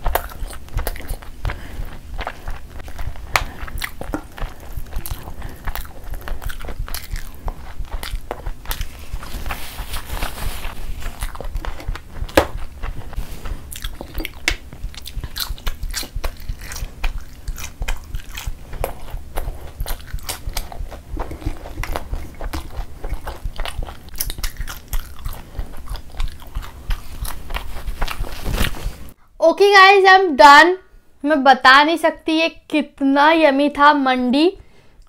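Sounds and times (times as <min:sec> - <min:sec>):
crunchy sweet being chewed: 0:00.0 - 0:29.2.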